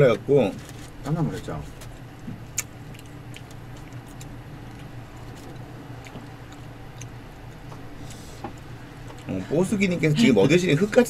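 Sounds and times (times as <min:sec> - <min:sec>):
steady low hum: 0:00.0 - 0:11.0
person chewing: 0:01.8 - 0:09.3.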